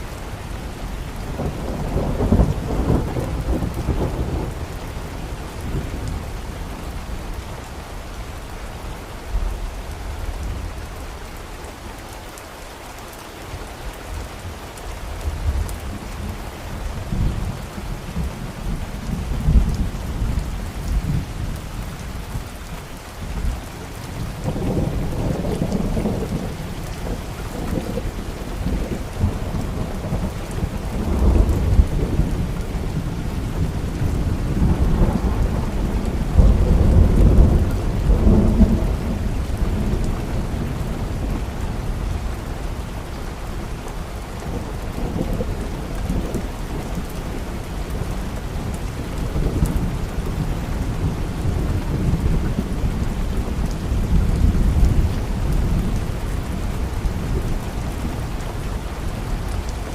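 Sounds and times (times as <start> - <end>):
steady rain: 0.0 - 59.9
low thunder rolling: 24.2 - 42.2.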